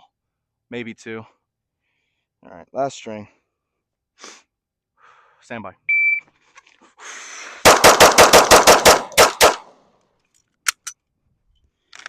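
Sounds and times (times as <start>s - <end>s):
handgun shots: 7.7s - 9.7s.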